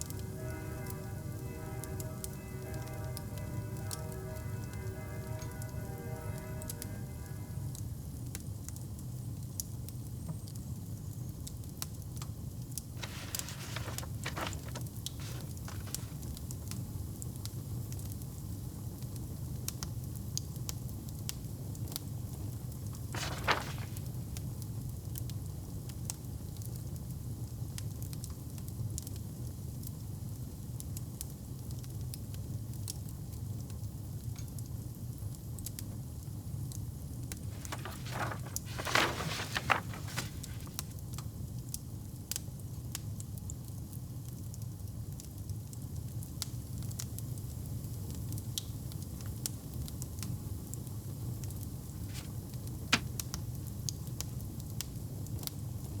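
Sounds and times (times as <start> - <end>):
fireplace fire crackling: 0.0 - 8.4, 12.7 - 16.8, 23.1 - 24.6, 37.4 - 41.2.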